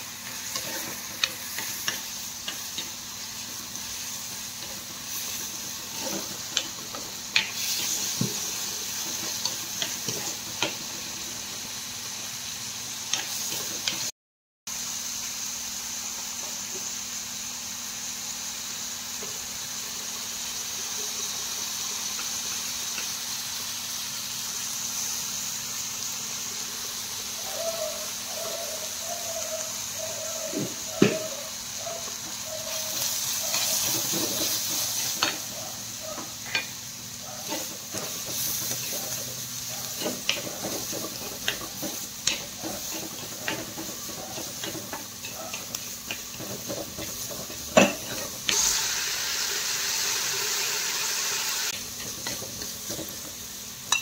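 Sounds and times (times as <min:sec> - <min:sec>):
stir-fry sizzling in a pan: 0:00.0 - 0:14.1, 0:14.7 - 0:54.0
spoon scraping a pan: 0:00.4 - 0:02.9, 0:04.6 - 0:08.4, 0:32.1 - 0:35.6, 0:37.4 - 0:48.8, 0:51.8 - 0:54.0.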